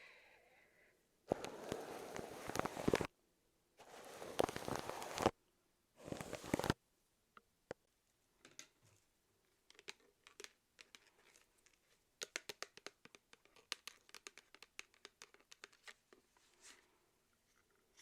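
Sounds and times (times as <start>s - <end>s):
faint crinkling and clicking: 1.3s - 3.1s, 3.8s - 5.4s.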